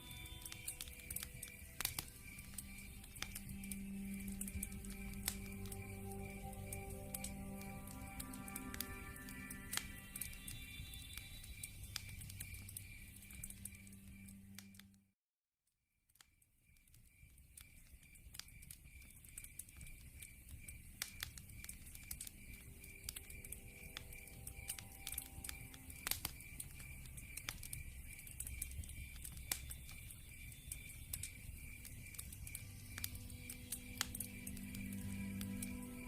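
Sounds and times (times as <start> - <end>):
high pulsing chirp: 0.0 - 14.6, 22.4 - 36.0
log fire crackling: 0.0 - 14.8, 16.9 - 36.0.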